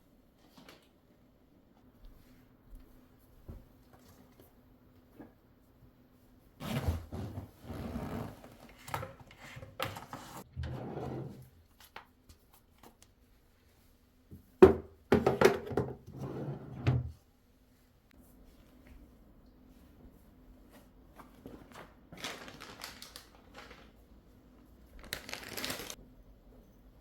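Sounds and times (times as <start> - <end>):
objects knocking and thudding: 14.6 - 16.2
rustling: 25.0 - 26.0.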